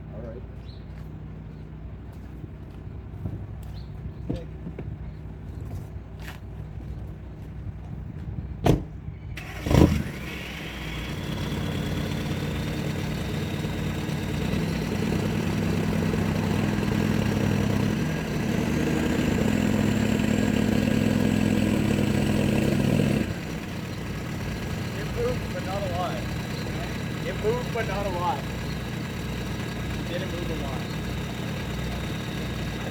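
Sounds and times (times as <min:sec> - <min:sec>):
truck engine revving under load: 0:09.4 - 0:32.9.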